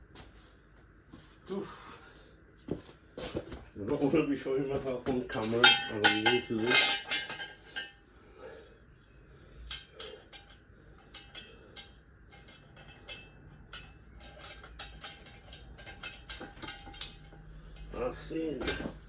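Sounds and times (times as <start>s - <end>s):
metal tools clinking: 5.0s - 19.0s.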